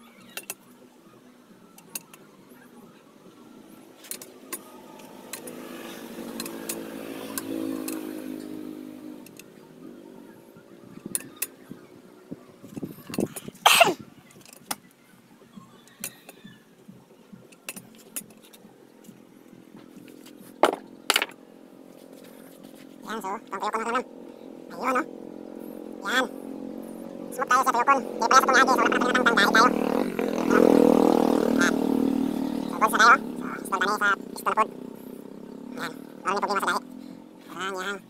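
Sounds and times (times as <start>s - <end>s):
passing vehicle engine: 3.4s - 13.5s, 18.2s - 38.0s.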